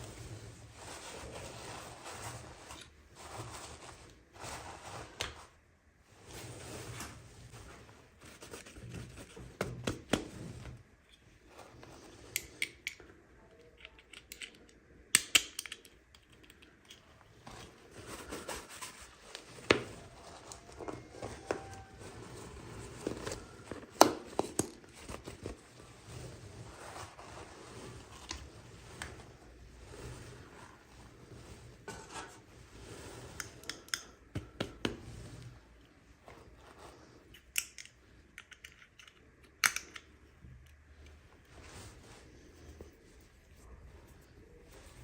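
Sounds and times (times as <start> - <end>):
packaging rustling and scraping: 17.4 - 34.2.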